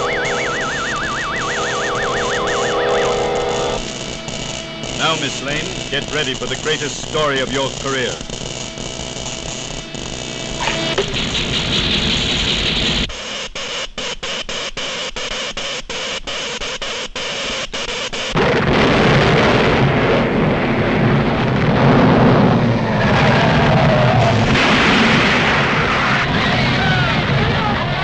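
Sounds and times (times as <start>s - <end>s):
dense rumbling quake noise: 0.0s - 8.4s, 9.0s - 13.1s, 18.4s - 28.0s
crackling electrical zaps: 0.0s - 18.5s.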